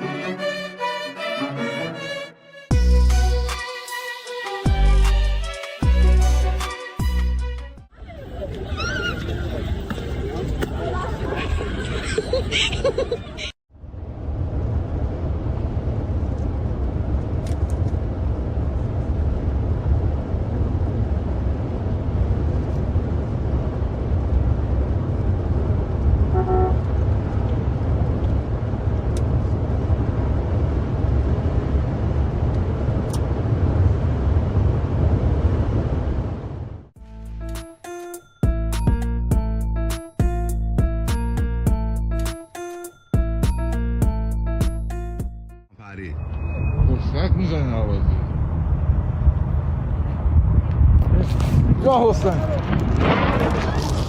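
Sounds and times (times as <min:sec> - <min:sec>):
car road noise rumble: 0:13.2 - 0:37.4, 0:46.0 - 0:54.0
car horn toot: 0:26.3 - 0:26.9.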